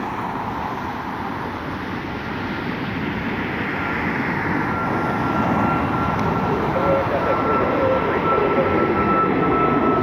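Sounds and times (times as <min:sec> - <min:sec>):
jet engines rushing: 0:00.0 - 0:10.0
thin steady whine: 0:04.3 - 0:10.0.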